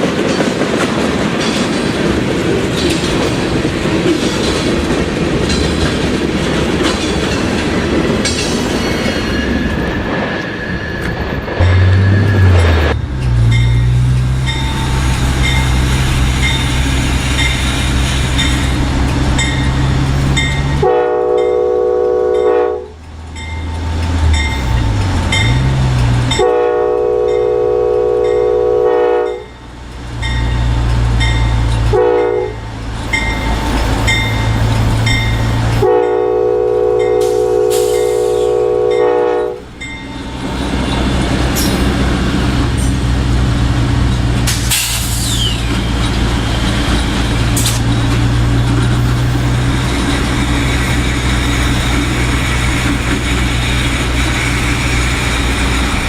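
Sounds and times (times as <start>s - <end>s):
locomotive engine rumble: 0.0s - 56.0s
locomotive air horn blasts: 20.8s - 23.0s, 26.3s - 29.4s, 31.9s - 32.6s, 35.8s - 39.6s.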